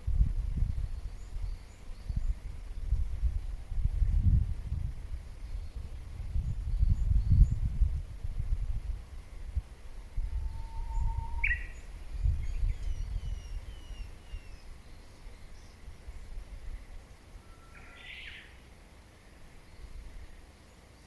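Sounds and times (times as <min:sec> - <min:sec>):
faint rising whistle: 0:10.2 - 0:14.7, 0:17.4 - 0:18.2
birds calling: 0:10.5 - 0:16.9.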